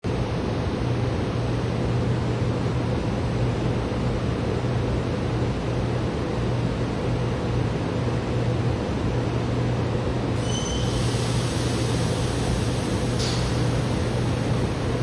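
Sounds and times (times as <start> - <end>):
electric train humming: 10.4 - 15.0
high squeal: 10.4 - 15.0
train hissing: 10.4 - 15.0.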